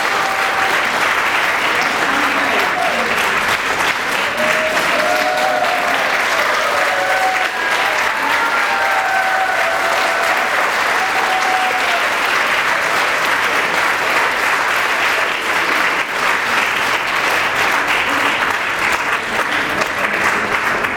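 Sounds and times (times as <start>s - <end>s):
drawn-out cheers: 0.0s - 1.0s, 4.2s - 12.2s
audience applauding: 0.0s - 20.9s.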